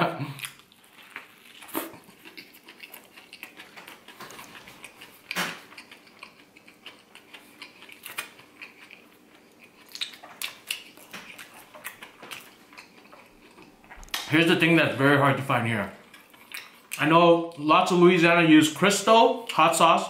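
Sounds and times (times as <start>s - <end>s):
person chewing sandwich: 0.2s - 14.3s, 16.0s - 17.0s.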